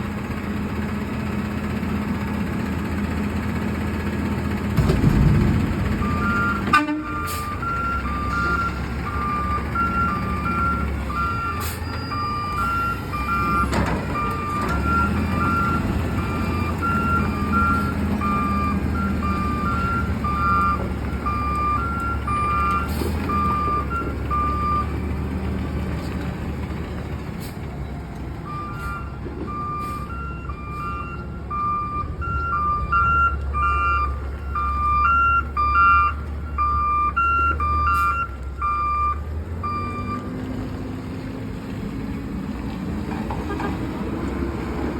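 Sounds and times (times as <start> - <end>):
diesel engine running: 0.0 - 44.9
two-tone reversing alarm beeping: 6.0 - 24.9, 28.5 - 40.2.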